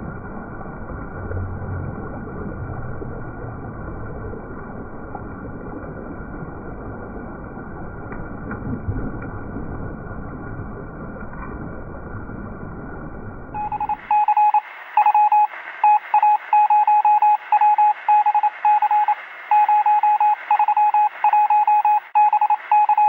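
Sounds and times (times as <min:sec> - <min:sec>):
morse code beeps: 0:13.6 - 0:23.0.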